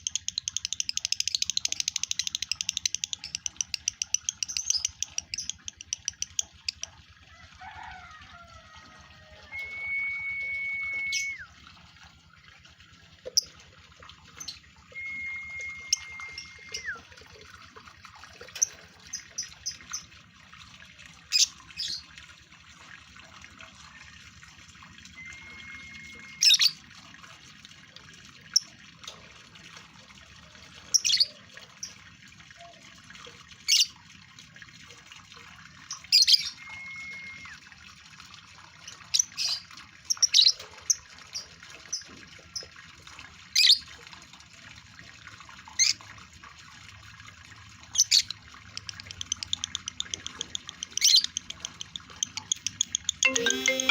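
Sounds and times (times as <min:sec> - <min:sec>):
bird whistling tone: 0:09.4 - 0:11.5, 0:14.8 - 0:17.0, 0:25.2 - 0:26.7, 0:36.4 - 0:37.6.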